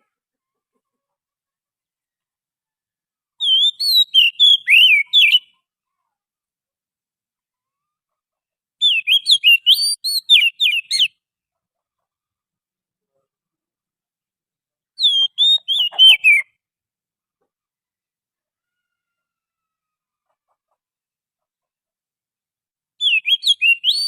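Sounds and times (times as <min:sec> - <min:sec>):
bird singing whistled notes: 0:03.4 - 0:05.5, 0:08.8 - 0:11.2, 0:15.0 - 0:16.5, 0:23.0 - 0:24.0.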